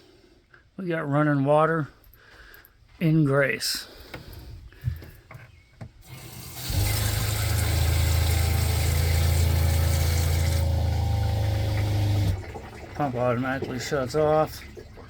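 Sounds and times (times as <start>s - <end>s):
pressure switch shutting off: 6.0s - 12.4s
water pump humming: 6.0s - 15.0s
water running from tap: 6.0s - 15.0s.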